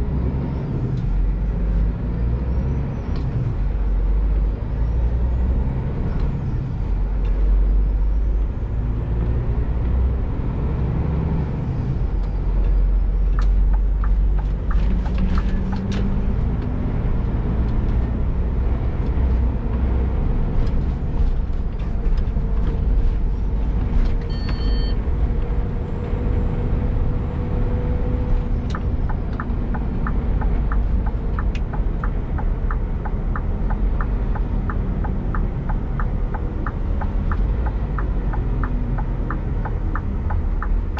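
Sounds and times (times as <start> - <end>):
truck diesel engine rumble: 0.0 - 40.9
short beep: 24.3 - 25.0
regular ticking: 28.7 - 40.9.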